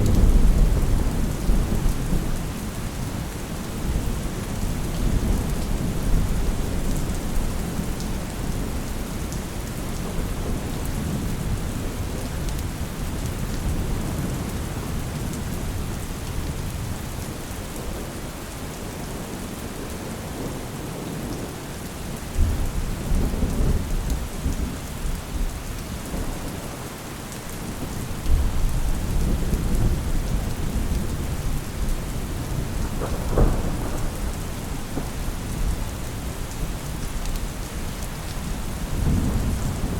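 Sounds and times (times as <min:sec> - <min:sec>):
steady rain falling: 0:00.0 - 0:39.9
distant thunder rumbling: 0:27.8 - 0:37.0.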